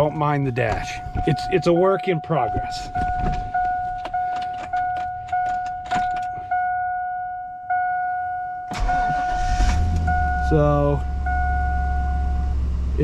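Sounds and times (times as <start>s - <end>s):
dashboard warning chime: 0.0s - 13.0s
keys jangling in ignition: 2.7s - 6.4s.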